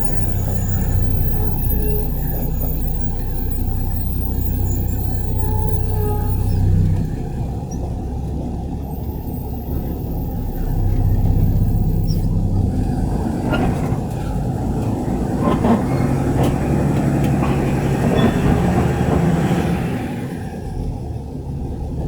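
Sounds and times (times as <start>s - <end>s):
garbage truck engine running: 0.0s - 22.0s
metallic knocks and clanks: 13.4s - 19.6s.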